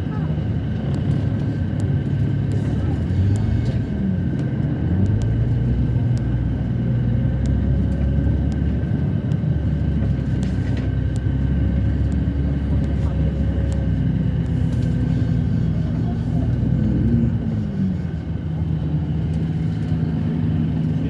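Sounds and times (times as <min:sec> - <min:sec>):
airplane cabin rumble: 0:00.0 - 0:21.0
light clicks: 0:00.9 - 0:06.6, 0:07.3 - 0:15.4.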